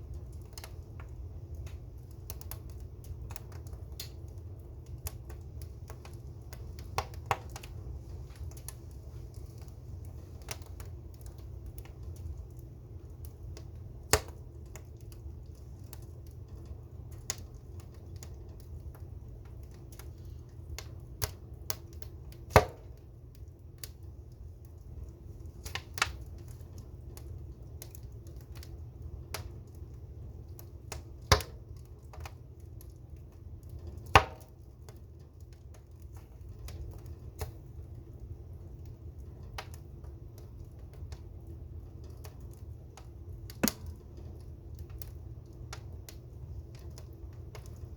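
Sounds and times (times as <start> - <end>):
fire crackling: 0.0 - 47.9
loud fire pops: 0.1 - 24.1, 30.6 - 32.4, 33.7 - 34.7, 42.0 - 47.9
low steady rumble: 32.6 - 47.9.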